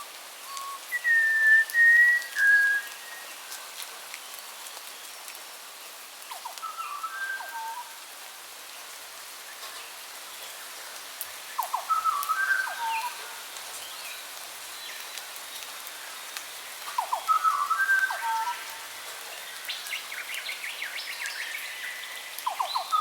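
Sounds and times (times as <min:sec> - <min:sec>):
steady hiss: 0:00.0 - 0:23.0
songbird whistling phrase: 0:00.4 - 0:03.2, 0:06.4 - 0:07.8, 0:11.7 - 0:13.2, 0:17.0 - 0:18.6.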